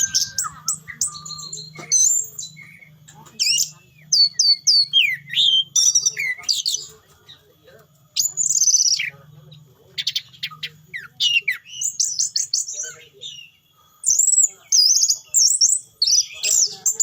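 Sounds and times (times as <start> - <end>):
thrush singing whistled phrases: 0.0 - 6.9.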